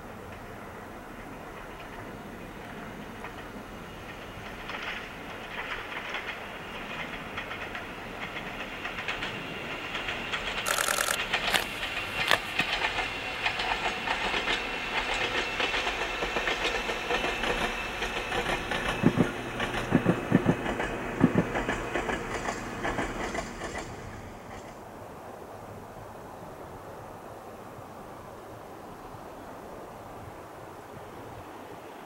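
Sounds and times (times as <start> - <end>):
train wheels clicking over rail joints: 1.2 - 24.8.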